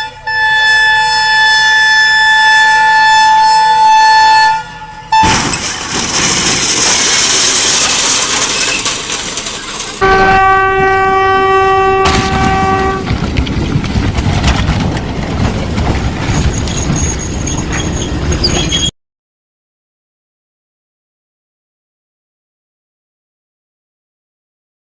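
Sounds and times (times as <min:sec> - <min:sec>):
train horn blast: 0:00.0 - 0:05.3, 0:10.0 - 0:13.1
train passing: 0:09.5 - 0:18.9.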